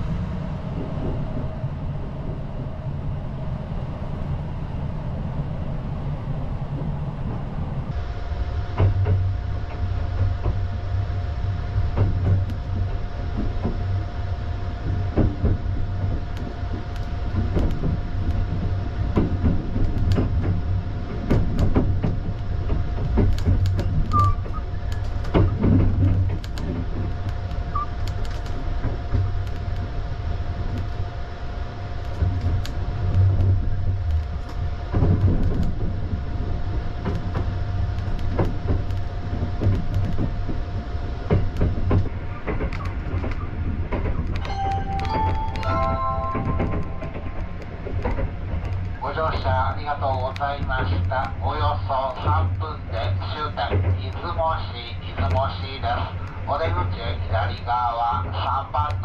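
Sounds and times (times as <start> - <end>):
train wheels rumbling on rail: 0.0 - 59.0
wheels clacking over track joints: 14.9 - 29.8, 37.0 - 59.0.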